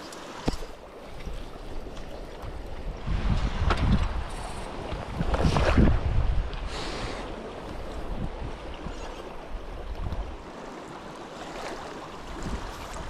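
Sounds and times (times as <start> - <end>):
wind rumbling on microphone: 0.4 - 10.7, 11.4 - 13.0.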